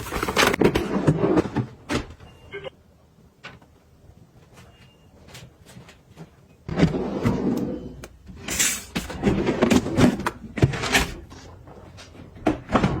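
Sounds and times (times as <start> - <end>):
items clattering: 0.0 - 2.2.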